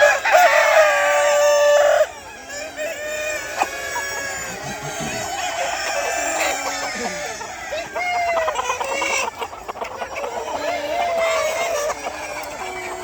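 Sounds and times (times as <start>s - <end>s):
chickens clucking: 0.0s - 13.0s
roosters crowing: 0.0s - 13.0s.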